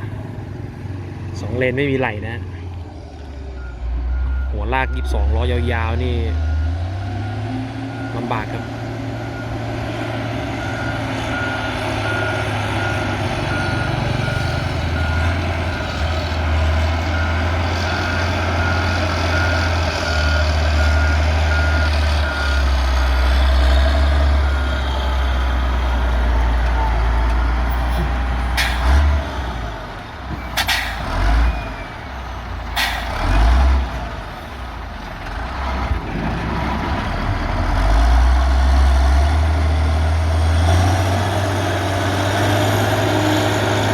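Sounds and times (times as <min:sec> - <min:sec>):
heavy diesel engine running: 0:00.0 - 0:43.9
reversing alarm beeping: 0:03.6 - 0:25.5.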